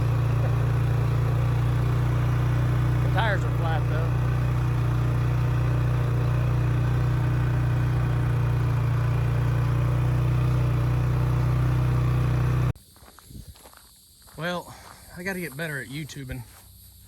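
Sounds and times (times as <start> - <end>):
vehicle engine running steadily: 0.0 - 12.8.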